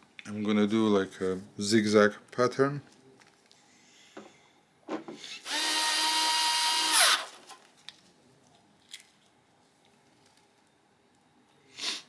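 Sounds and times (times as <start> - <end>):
electric screwdriver running: 5.4 - 7.3.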